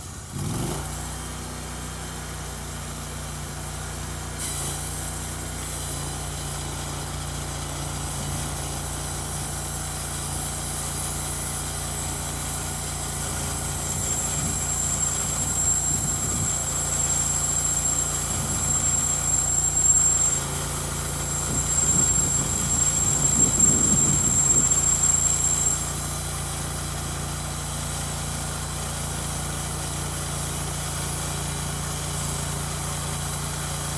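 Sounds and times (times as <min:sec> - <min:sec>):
sawmill engine humming: 0:01.4 - 0:33.9
saw blade whining: 0:04.3 - 0:33.9
high hiss: 0:08.6 - 0:26.2.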